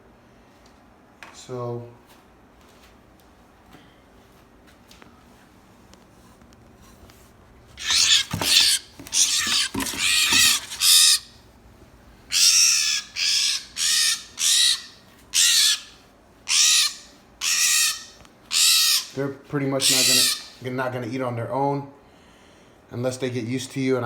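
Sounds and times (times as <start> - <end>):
baby bird squawking: 7.8 - 11.4, 12.3 - 19.2, 19.8 - 20.6.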